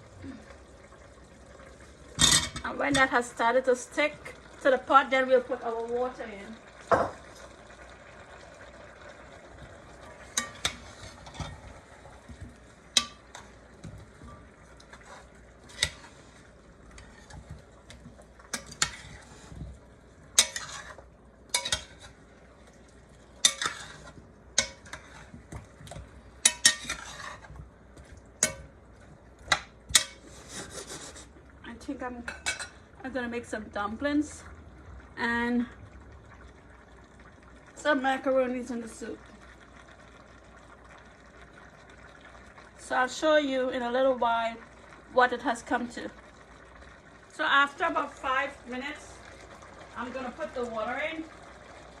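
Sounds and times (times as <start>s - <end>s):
vegetables sizzling: 0.0s - 36.7s, 40.6s - 52.0s
spoon scraping pot: 10.2s - 11.7s, 12.3s - 19.8s, 20.4s - 22.2s, 23.4s - 27.6s, 29.5s - 31.3s.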